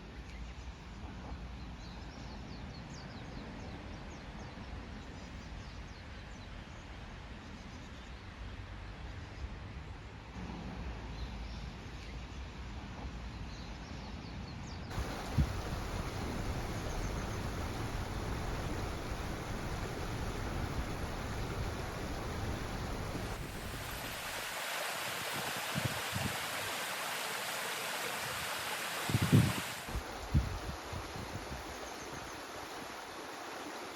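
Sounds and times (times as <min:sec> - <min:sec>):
stream water rushing: 0:14.9 - 0:33.9.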